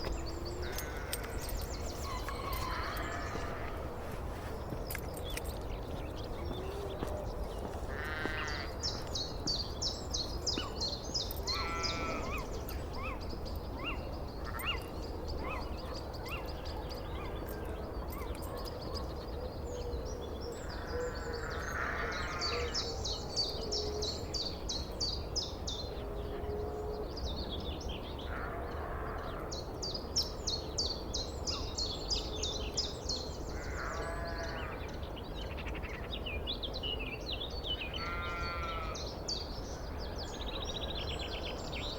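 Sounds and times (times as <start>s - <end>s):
small bird singing: 0.0s - 18.7s
sheep bleating: 7.9s - 8.8s, 38.0s - 39.0s.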